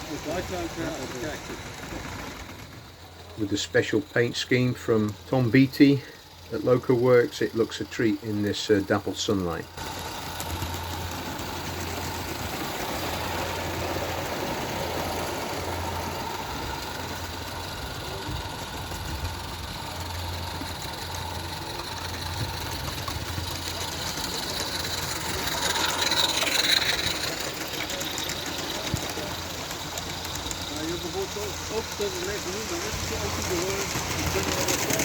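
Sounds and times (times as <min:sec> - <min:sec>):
model steam locomotive running: 0:00.0 - 0:35.0.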